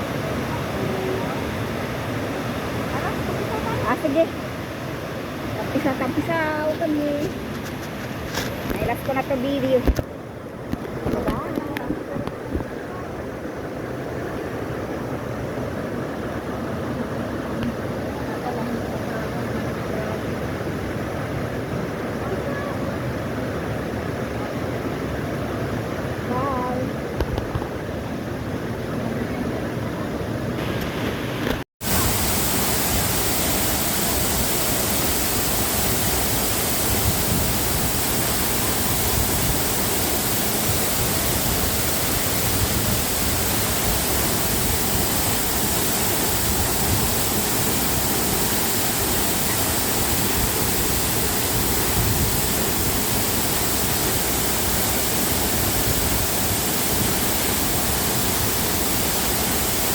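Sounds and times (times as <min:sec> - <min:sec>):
waterfall rushing: 0:00.0 - 0:07.7, 0:30.6 - 0:59.9.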